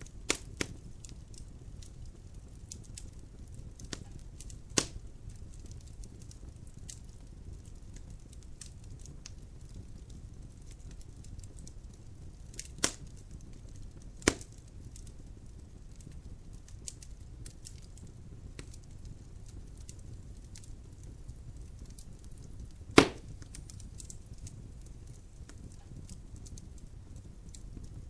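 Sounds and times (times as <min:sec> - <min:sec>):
fire crackles: 0:00.0 - 0:28.0
low rumble of flames: 0:00.0 - 0:28.0
loud sharp pops of wood: 0:00.3 - 0:00.7, 0:04.8 - 0:05.0, 0:12.8 - 0:13.0, 0:14.2 - 0:14.5, 0:23.0 - 0:23.6.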